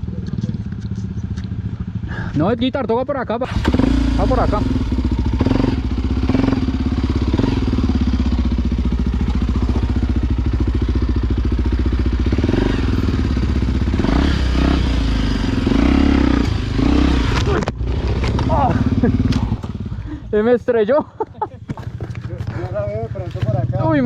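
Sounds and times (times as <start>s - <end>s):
motorcycle engine running: 0.0s - 24.0s
short knocks and clatter: 21.6s - 23.6s.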